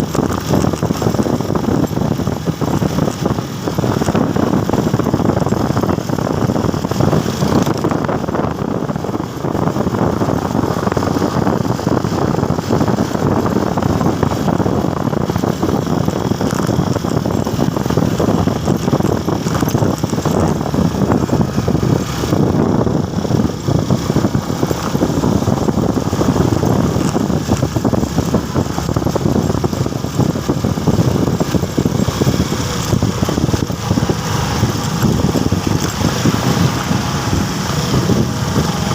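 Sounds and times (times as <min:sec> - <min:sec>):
motorcycle engine rumble: 0:00.0 - 0:38.9
road noise: 0:00.0 - 0:38.9
wind noise: 0:00.0 - 0:38.9.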